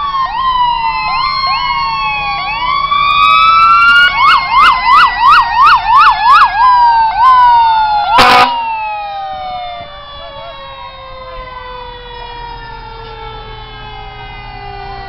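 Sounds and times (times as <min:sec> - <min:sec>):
fire truck siren yelp: 0:00.0 - 0:15.0
wailing siren: 0:00.0 - 0:15.0
horn blast: 0:08.1 - 0:08.6.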